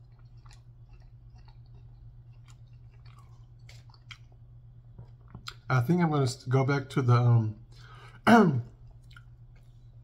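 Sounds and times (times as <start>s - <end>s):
person chewing pasta: 0.0s - 5.7s, 8.6s - 10.0s
steady low hum: 0.0s - 10.0s.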